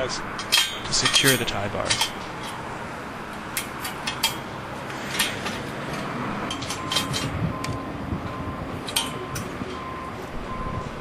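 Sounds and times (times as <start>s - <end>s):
steady background noise: 0.0s - 11.0s
metal clinks and taps: 0.4s - 2.6s, 3.5s - 4.5s, 5.1s - 7.8s.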